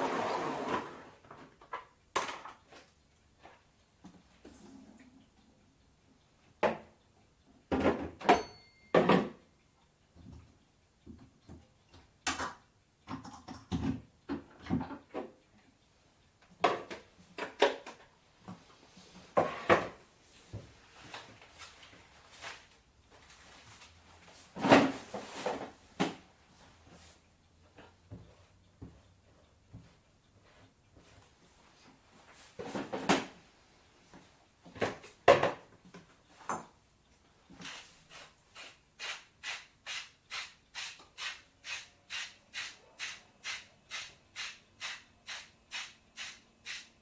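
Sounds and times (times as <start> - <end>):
ringing clink: 8.3 - 9.0.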